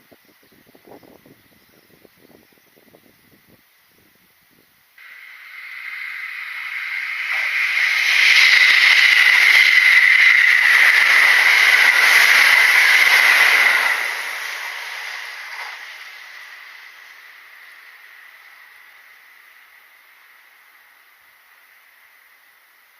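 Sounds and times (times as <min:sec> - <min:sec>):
electric train passing at speed: 0:05.0 - 0:22.9.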